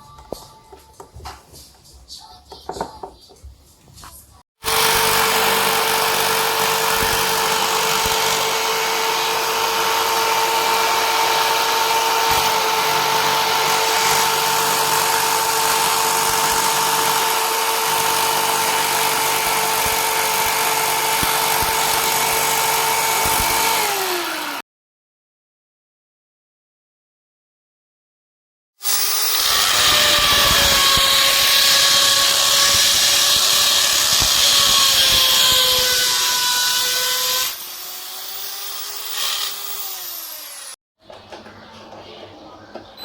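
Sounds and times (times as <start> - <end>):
electric power tool motor: 4.6 - 24.6, 28.8 - 40.8.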